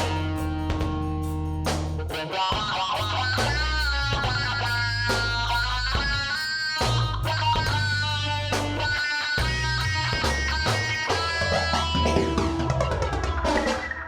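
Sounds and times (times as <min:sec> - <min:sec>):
guitar: 0:00.0 - 0:14.0
percussion beat: 0:00.0 - 0:14.0
held bass notes: 0:06.8 - 0:13.4.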